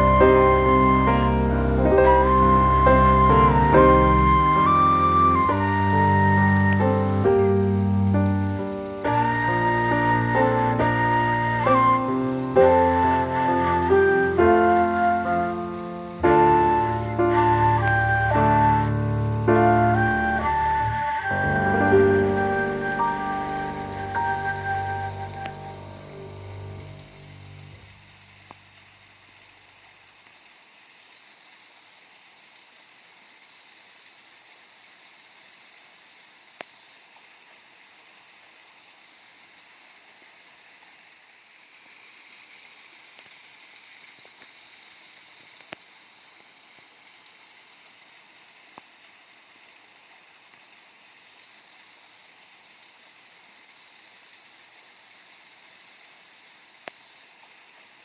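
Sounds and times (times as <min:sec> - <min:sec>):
waterfall rushing: 0:00.0 - 0:30.2.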